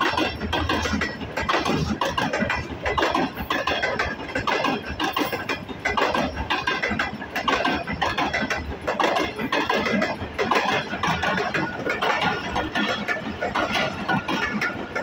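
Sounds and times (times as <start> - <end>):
train wheels clattering over rails: 0.0 - 15.0.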